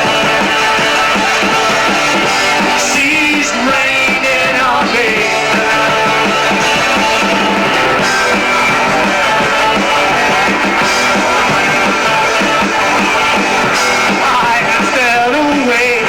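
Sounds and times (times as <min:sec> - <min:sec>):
drum kit beat: 0:00.0 - 0:16.0
electric guitar: 0:00.0 - 0:16.0.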